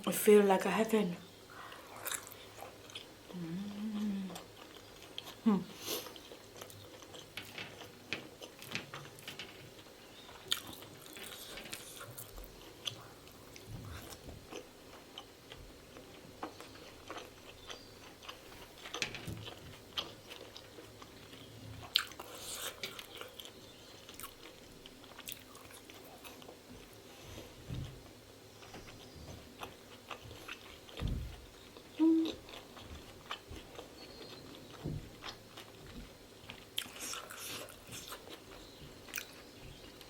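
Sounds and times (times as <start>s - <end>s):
person chewing: 1.5s - 40.0s.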